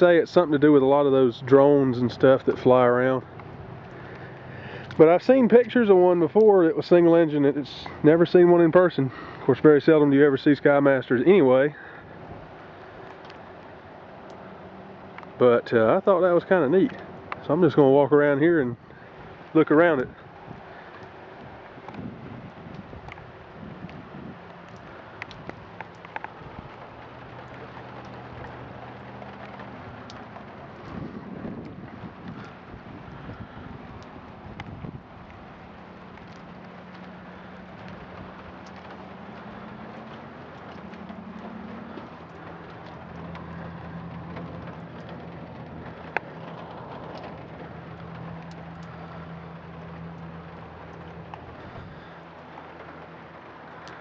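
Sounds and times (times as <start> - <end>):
low outdoor hum: 0.0 - 54.0
wind buffeting microphone: 15.0 - 53.8.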